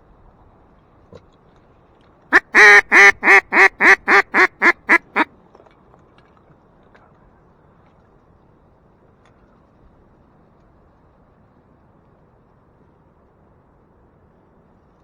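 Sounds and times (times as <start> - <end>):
duck call quacking: 2.4 - 5.3.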